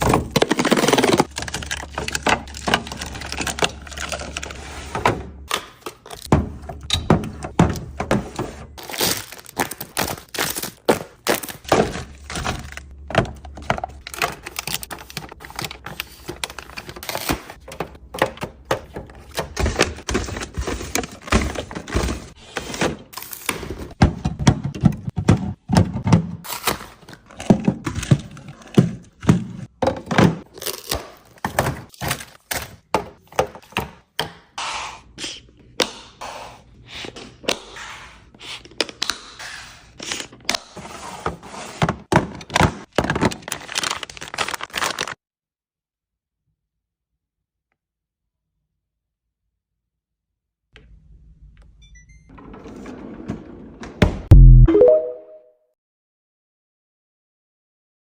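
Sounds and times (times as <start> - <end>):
food packages clattering on shelves: 0.0 - 34.3, 40.1 - 45.2.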